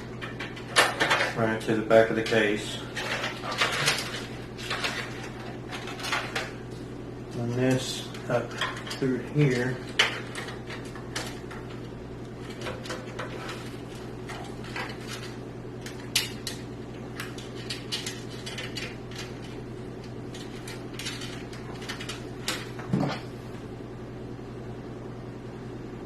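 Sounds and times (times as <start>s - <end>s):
steady low hum: 0.0s - 26.0s
clicks taps and rustles of plastic parts: 12.4s - 19.6s, 20.3s - 23.2s.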